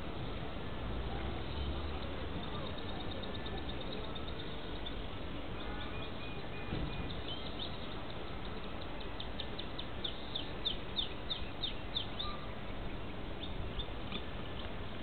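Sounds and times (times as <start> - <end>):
bird singing high notes: 10.4 - 12.5.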